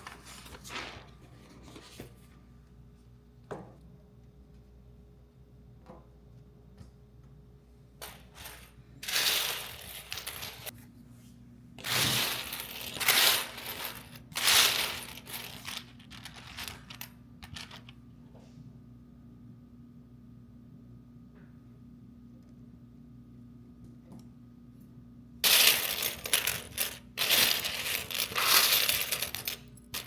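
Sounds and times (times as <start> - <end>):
household items clinking and clattering: 8.0 - 10.8, 11.8 - 17.9, 25.4 - 30.0.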